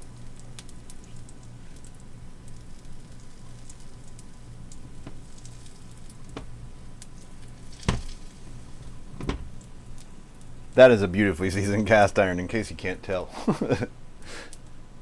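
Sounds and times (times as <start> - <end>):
batter sizzling in a pan: 0.0 - 9.0
faint crackles: 0.0 - 11.5.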